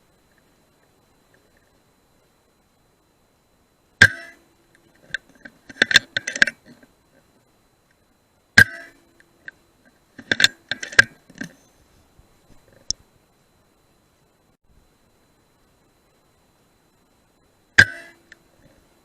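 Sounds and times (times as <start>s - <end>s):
metallic clicks and clinks: 10.2s - 11.6s.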